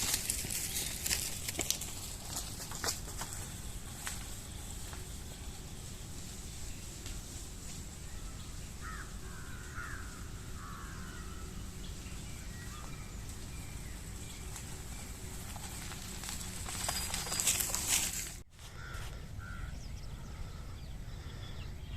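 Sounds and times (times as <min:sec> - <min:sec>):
low outdoor rumble: 0:00.0 - 0:21.9
birds harsh calls: 0:07.8 - 0:21.9.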